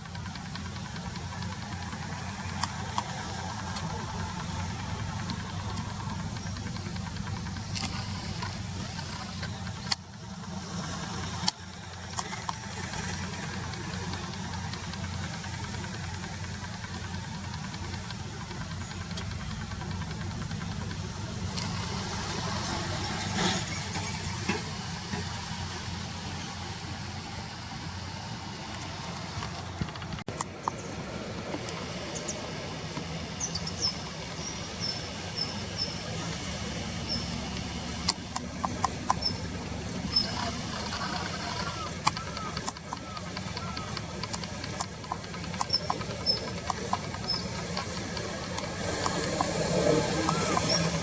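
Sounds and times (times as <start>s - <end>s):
distant traffic rumble: 0.0s - 51.0s
sharp clicks: 0.0s - 51.0s
steady low hum: 0.0s - 51.0s
faint ticks: 28.7s - 51.0s.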